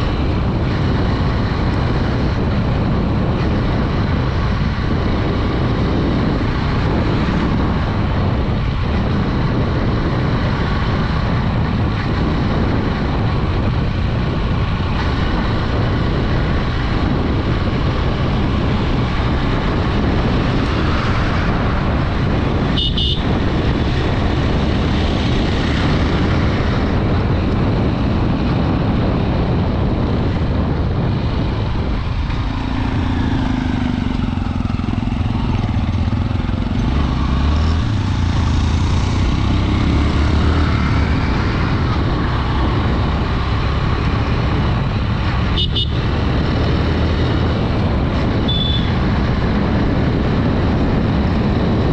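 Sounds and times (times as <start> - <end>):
motorcycle engine running: 0.0 - 51.9
wind rush on microphone: 0.0 - 51.9
horn beep: 22.8 - 23.3, 48.4 - 49.0.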